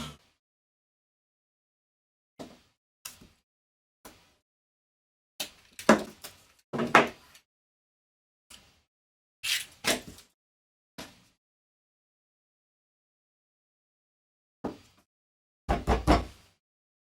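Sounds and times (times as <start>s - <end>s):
objects knocking and clattering: 5.5s - 7.2s.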